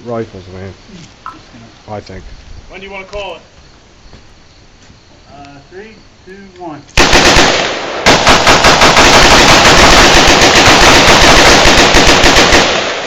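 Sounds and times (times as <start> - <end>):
rapid rifle fire: 7.0 - 13.0.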